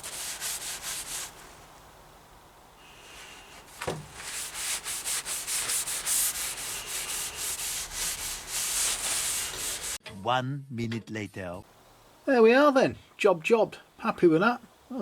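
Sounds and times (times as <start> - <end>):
rag rubbing wooden handle: 0.0 - 1.6, 3.0 - 10.0.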